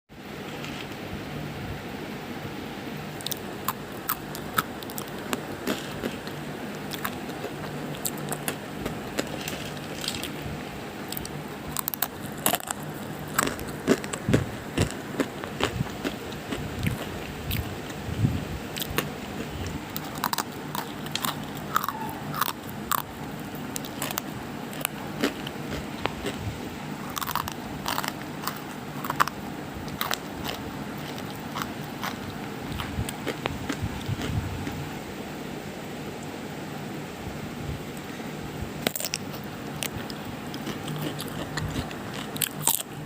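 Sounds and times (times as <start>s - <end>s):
steady low hum: 0.1s - 43.0s
crunching and crackling clicks: 3.2s - 10.5s, 11.1s - 18.0s, 18.7s - 26.4s, 27.0s - 34.8s, 38.8s - 43.0s.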